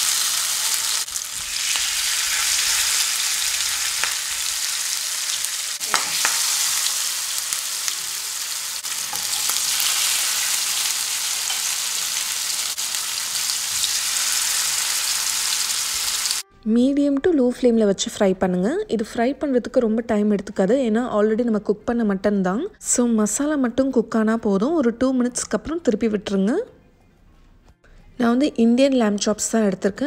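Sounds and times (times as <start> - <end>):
meat sizzling in hot oil: 0.0 - 16.4.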